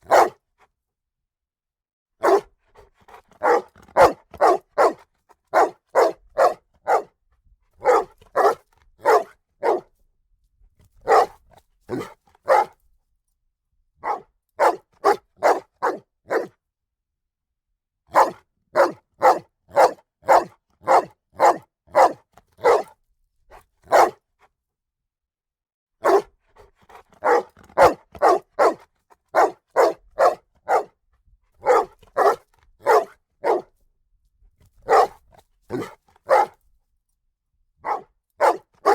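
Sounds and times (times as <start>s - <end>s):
dog barking loudly: 0.0s - 0.4s, 2.2s - 2.5s, 3.1s - 7.1s, 7.8s - 9.9s, 11.0s - 12.8s, 14.0s - 16.5s, 18.1s - 23.0s, 23.9s - 24.2s, 26.0s - 26.3s, 26.9s - 30.9s, 31.6s - 33.7s, 34.8s - 36.6s, 37.8s - 38.9s.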